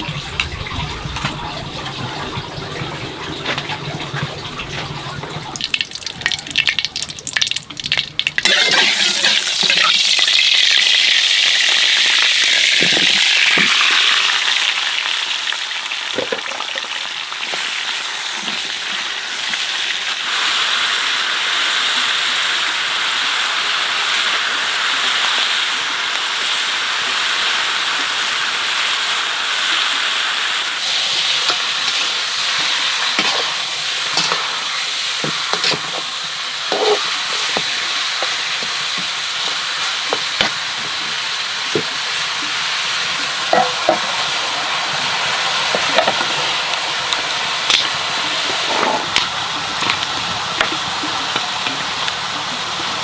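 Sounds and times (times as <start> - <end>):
water sounds: 0.0 - 8.4
food sizzling in a pan: 4.2 - 53.0.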